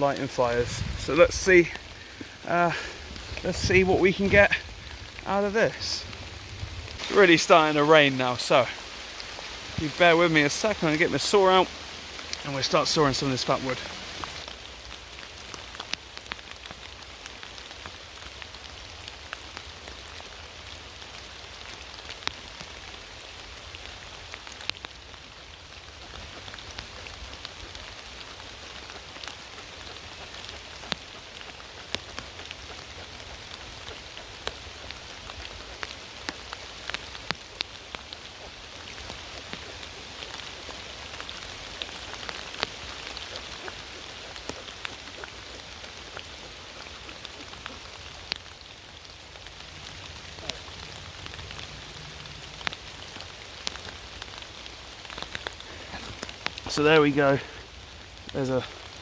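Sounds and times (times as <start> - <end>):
sharp ticks of raindrops: 0.0 - 59.0
steady rain: 0.0 - 59.0.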